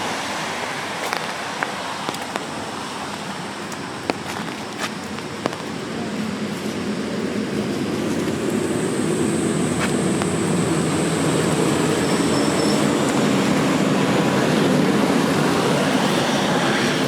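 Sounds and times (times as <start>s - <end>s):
large vehicle passing on wet street: 0.0s - 17.0s
thin high whine: 6.2s - 17.0s.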